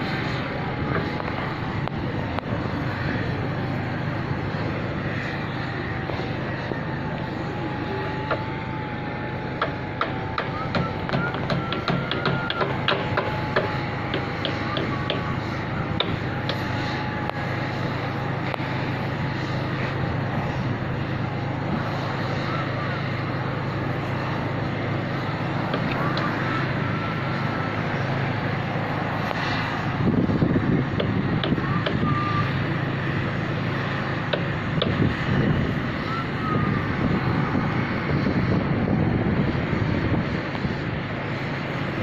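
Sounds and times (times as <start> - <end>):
propeller plane engine droning: 0.0 - 42.0.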